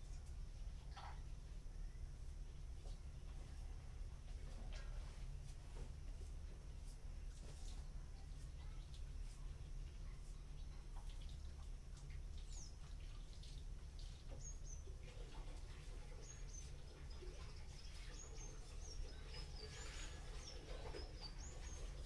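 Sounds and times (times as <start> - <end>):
low steady hum: 0.0 - 22.0
small birds chirping: 6.8 - 22.0.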